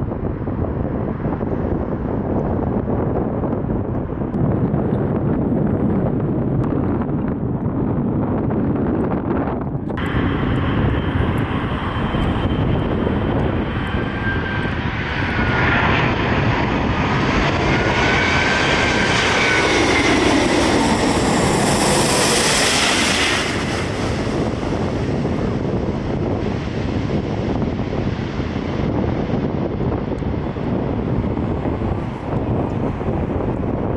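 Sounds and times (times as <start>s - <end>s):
wind on microphone: 0.0s - 33.9s
jet airliner passing overhead: 9.9s - 33.9s.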